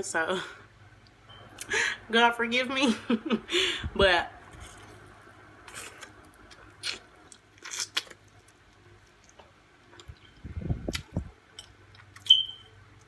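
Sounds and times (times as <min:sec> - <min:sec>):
person biting and chewing food: 0:04.5 - 0:12.6.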